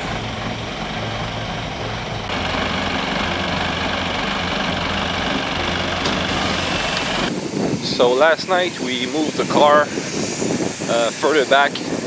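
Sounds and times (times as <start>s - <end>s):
vehicle engine running: 0.0s - 7.3s.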